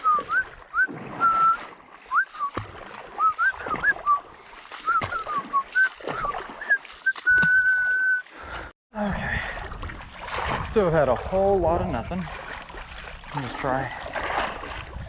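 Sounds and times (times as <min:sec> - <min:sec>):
water splashing: 0:00.0 - 0:15.0.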